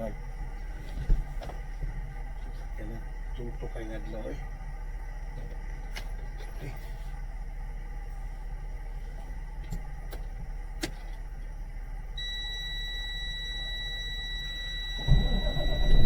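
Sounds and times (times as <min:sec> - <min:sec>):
high-pitched warning buzzer: 0:12.2 - 0:16.0
loud engine rumble: 0:15.0 - 0:16.0
truck engine idling: 0:15.0 - 0:16.0.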